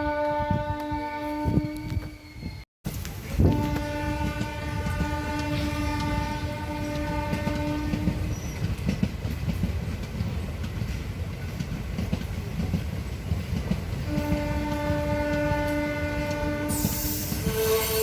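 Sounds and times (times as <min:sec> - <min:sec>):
train horn long blast: 0:00.0 - 0:02.3, 0:03.4 - 0:08.3, 0:14.1 - 0:18.0
train wheels clattering over rail joints: 0:02.9 - 0:18.0.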